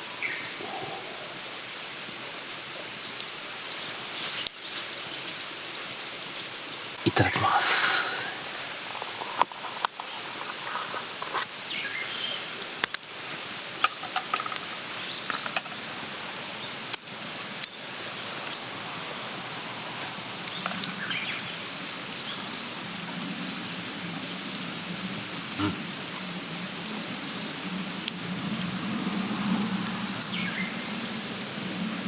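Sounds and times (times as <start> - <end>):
campfire crackling and popping: 1.3 - 23.4, 24.4 - 32.0.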